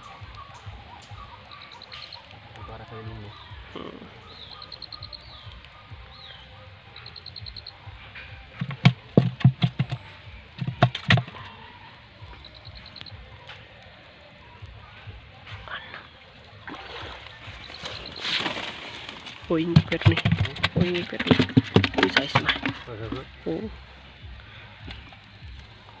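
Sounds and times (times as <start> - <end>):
bird trills: 0.0 - 7.8, 17.4 - 18.5.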